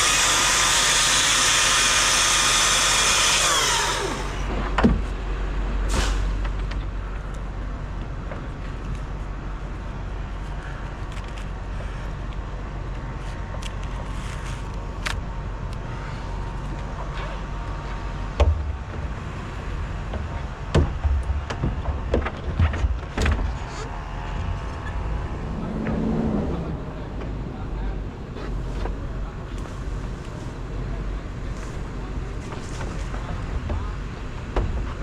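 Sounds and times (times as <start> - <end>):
truck engine rumbling: 21.6 - 35.0.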